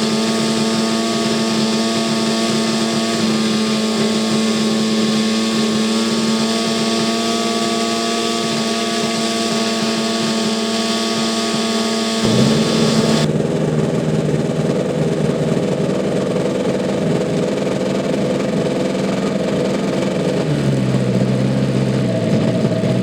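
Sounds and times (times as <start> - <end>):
model aircraft engine running: 0.0 - 13.3.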